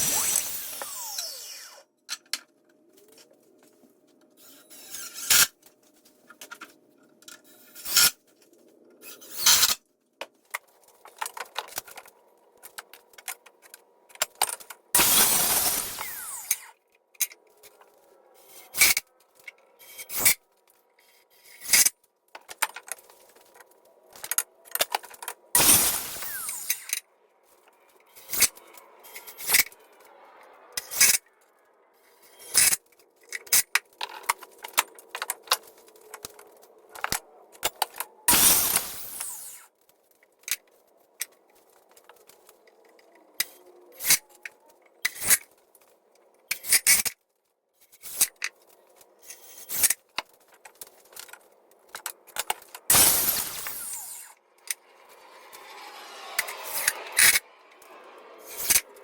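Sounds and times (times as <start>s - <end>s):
power tool running: 0.0s - 1.8s, 15.0s - 16.6s, 25.6s - 26.9s, 38.3s - 39.7s, 52.9s - 58.6s.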